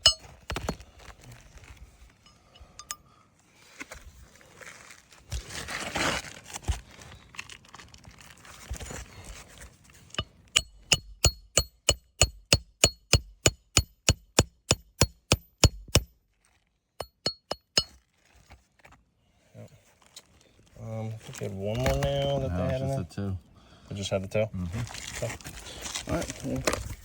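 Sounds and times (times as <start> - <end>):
hammer striking metal tool: 0.0 - 0.8, 10.2 - 16.1, 17.0 - 18.0
scraping rustle: 3.6 - 10.2, 24.7 - 27.0.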